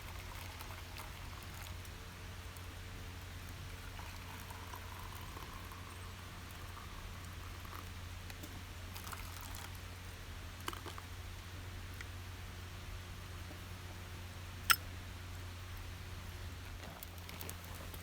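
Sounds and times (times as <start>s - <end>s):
pot of rice bubbling: 0.0s - 11.4s.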